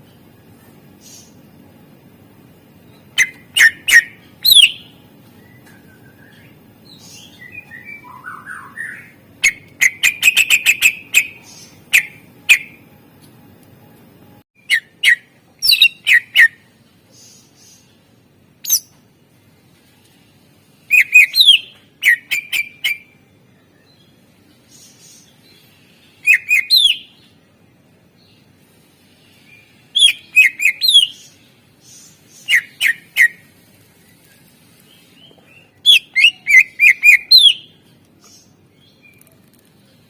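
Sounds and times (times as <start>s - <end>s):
bird whistling and warbling: 3.2s - 6.4s, 7.3s - 12.8s, 14.6s - 16.6s, 18.6s - 18.9s, 20.9s - 23.1s, 26.2s - 27.2s, 30.0s - 31.2s, 32.4s - 33.4s, 35.8s - 37.7s.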